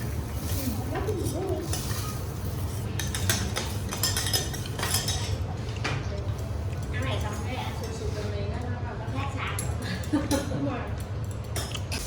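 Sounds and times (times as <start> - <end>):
metal utensils scraping griddle: 0.4 - 5.3.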